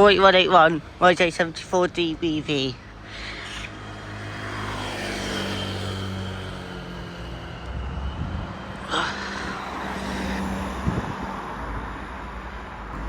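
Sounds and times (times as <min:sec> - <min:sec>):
bus engine droning: 0:00.0 - 0:13.0.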